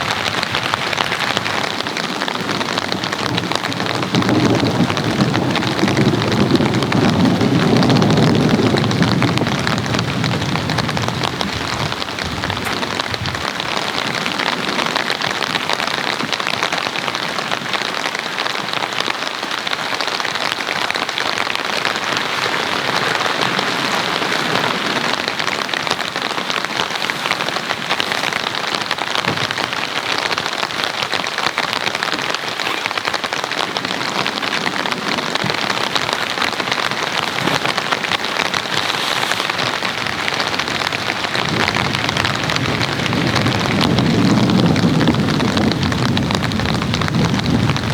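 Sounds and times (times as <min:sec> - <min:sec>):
low roll of thunder: 0:00.0 - 0:16.3, 0:39.6 - 0:47.9
heavy rain on a tent: 0:00.0 - 0:47.9.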